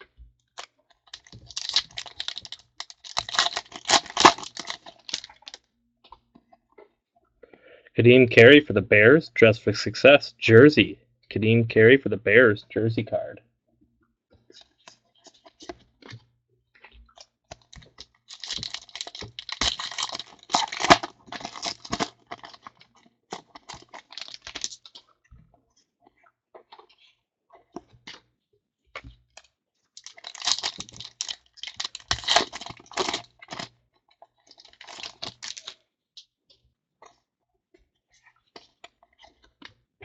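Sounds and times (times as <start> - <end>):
cards clicking and shuffling: 0.6 - 5.6, 17.5 - 25.0
wrappers tearing and crinkling: 0.6 - 5.6, 17.7 - 25.0, 30.0 - 33.7, 34.5 - 35.8.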